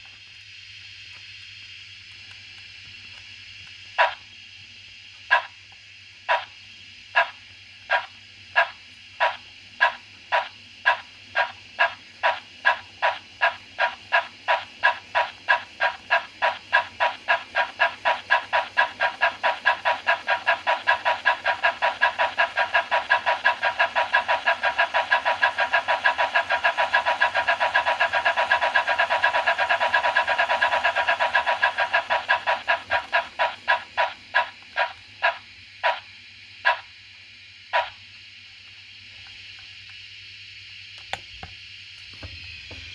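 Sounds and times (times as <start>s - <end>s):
steam engine chuffs: 4.0s - 4.2s, 5.3s - 5.6s, 6.2s - 37.0s, 37.7s - 38.0s.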